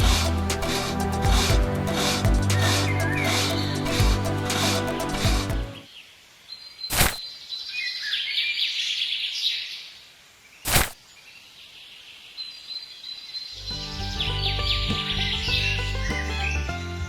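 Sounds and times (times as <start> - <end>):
music: 0.0 - 5.8, 13.6 - 17.0.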